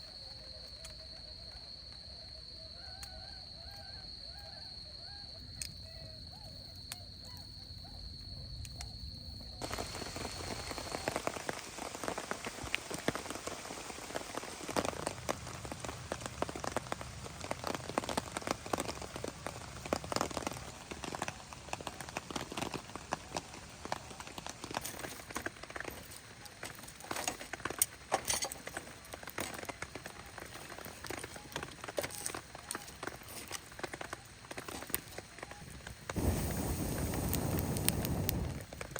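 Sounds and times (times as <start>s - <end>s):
faint animal calls: 0.0s - 9.0s
rain falling: 9.6s - 38.9s.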